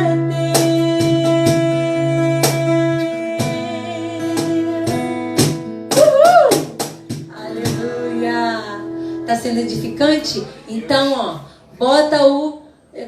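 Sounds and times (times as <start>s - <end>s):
acoustic guitar strumming: 0.0s - 11.8s
person singing: 7.3s - 10.9s.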